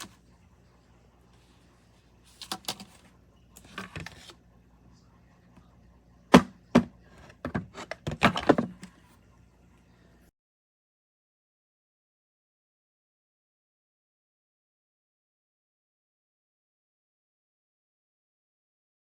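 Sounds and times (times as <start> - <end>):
faint steady hum: 0.0 - 10.3.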